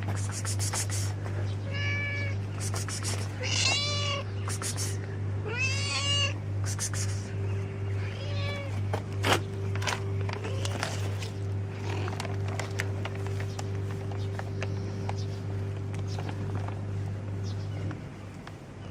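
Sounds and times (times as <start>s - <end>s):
steady low hum: 0.0s - 18.9s
cat meowing: 1.6s - 2.4s, 3.4s - 4.3s, 5.4s - 6.4s, 8.0s - 8.8s.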